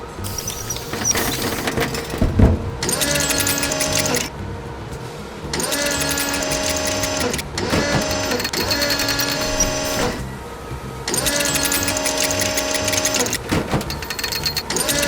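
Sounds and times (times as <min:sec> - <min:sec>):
cartoon motor whirring and clicking: 0:00.2 - 0:04.3, 0:05.5 - 0:10.3, 0:11.1 - 0:15.0
low thud: 0:01.8 - 0:03.0.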